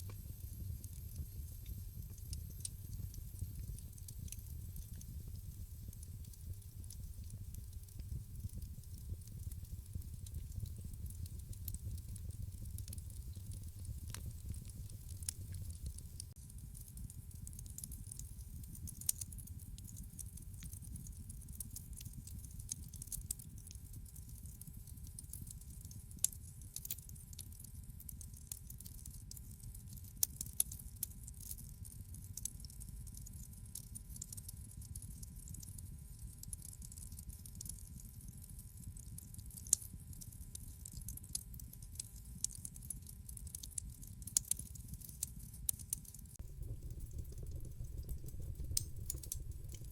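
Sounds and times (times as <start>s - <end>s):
fire crackling and popping: 0.0s - 26.0s, 42.2s - 49.9s.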